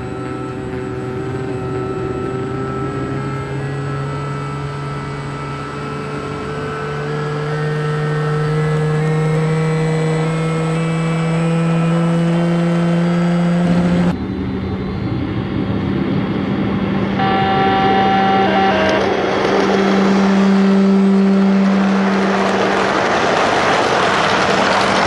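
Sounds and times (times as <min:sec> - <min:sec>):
model locomotive whining tones: 0:00.0 - 0:13.0, 0:17.1 - 0:25.0.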